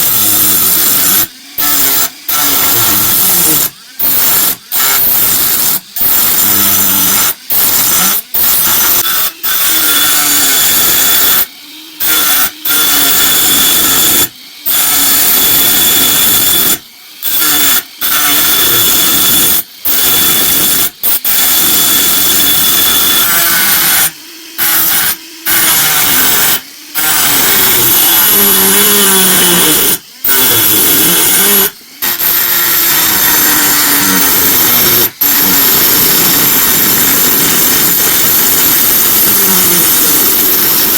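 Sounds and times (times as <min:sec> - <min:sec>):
handheld power tool whining: 0:00.0 - 0:40.9.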